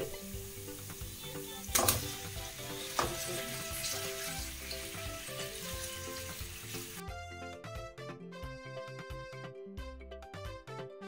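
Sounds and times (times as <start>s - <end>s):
chicken sizzling in hot oil: 0.0s - 7.0s
background music: 0.0s - 11.0s.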